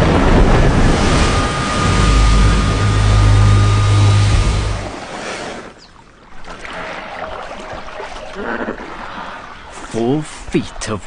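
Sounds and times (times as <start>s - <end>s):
loud low rumble: 0.0s - 5.0s
water sloshing and splashing: 0.0s - 10.5s
rushing water: 0.0s - 11.0s.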